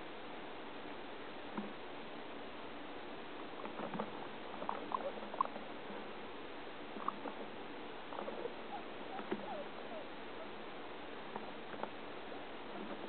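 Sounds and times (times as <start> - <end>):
guinea pig squeaking and clicking: 4.6 - 5.6, 7.0 - 7.3, 8.1 - 10.0.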